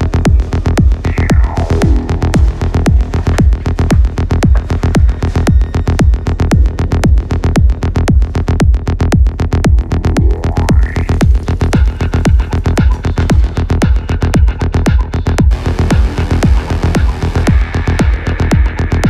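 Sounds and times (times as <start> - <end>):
kick drum pulse: 0.0 - 19.0
falling synth sweep: 0.9 - 4.2
fast clicking percussion: 10.7 - 15.6.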